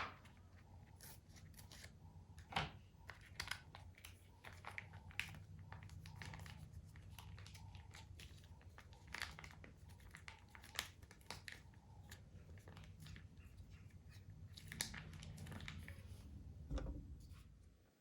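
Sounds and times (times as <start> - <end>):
low steady hum: 0.0 - 18.0
plastic packaging crinkling: 3.1 - 16.6.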